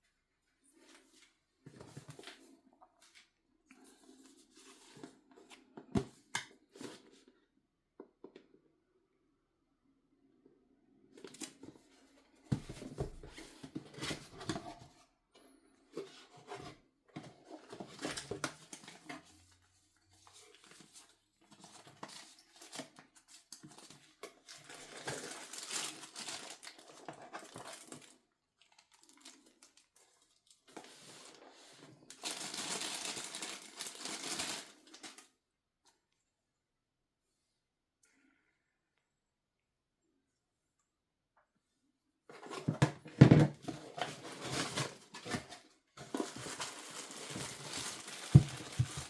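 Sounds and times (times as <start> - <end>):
packaging rustling and crinkling: 20.2 - 35.3, 43.6 - 49.0.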